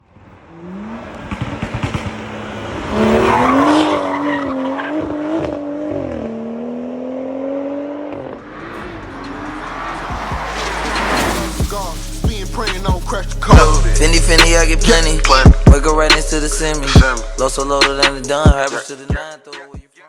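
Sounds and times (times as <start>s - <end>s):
exhaust crackles: 0.1s - 4.1s, 8.1s - 18.8s
car engine accelerating hard: 0.1s - 18.6s.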